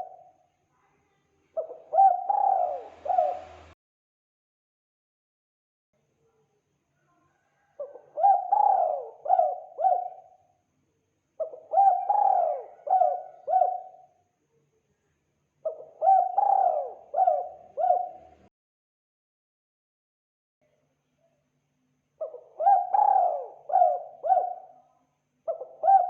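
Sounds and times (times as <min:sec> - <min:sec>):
dove cooing: 0:00.0 - 0:00.3, 0:01.6 - 0:03.8, 0:07.7 - 0:10.4, 0:11.4 - 0:14.1, 0:15.6 - 0:18.5, 0:22.2 - 0:24.8, 0:25.5 - 0:26.0.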